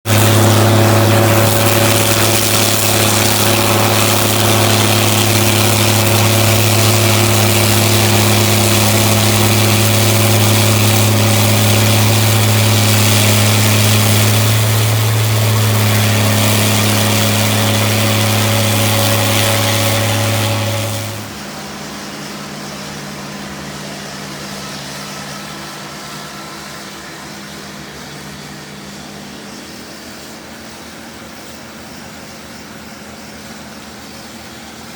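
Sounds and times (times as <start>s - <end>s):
snow blower engine running: 0.0s - 34.9s
loud rushing noise: 0.1s - 23.2s.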